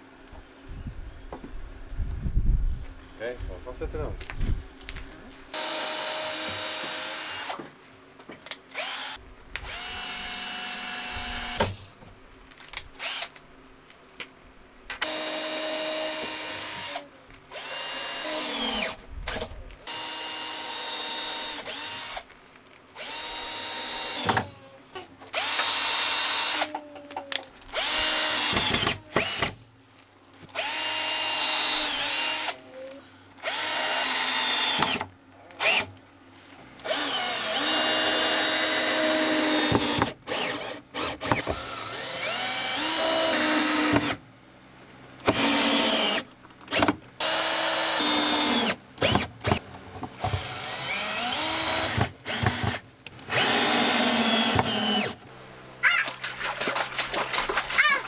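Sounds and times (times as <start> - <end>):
power drill driving screws: 5.5 - 7.6, 8.7 - 11.8, 13.0 - 13.3, 15.0 - 22.3, 22.9 - 24.5, 25.3 - 26.7, 27.7 - 29.6, 30.5 - 32.6, 33.4 - 35.0, 35.6 - 35.9, 36.8 - 44.2, 45.2 - 49.6, 50.2 - 55.2.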